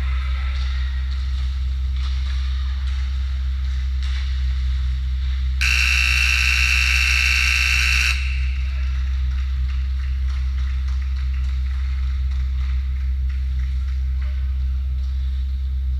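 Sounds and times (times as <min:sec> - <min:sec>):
steady low hum: 0:00.0 - 0:15.9
scoreboard buzzer: 0:05.6 - 0:08.8.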